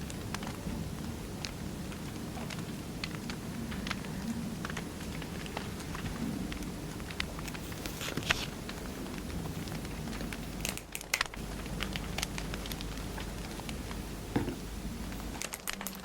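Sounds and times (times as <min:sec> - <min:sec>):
low fire rumble: 0:00.0 - 0:16.0
wood fire crackling: 0:00.0 - 0:16.0.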